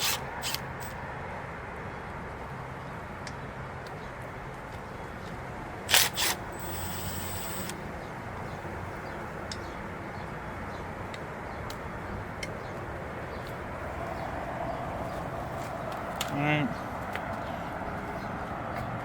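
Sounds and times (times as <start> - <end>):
low background hum: 4.0 - 12.4
sharp noise bursts: 5.9 - 7.8.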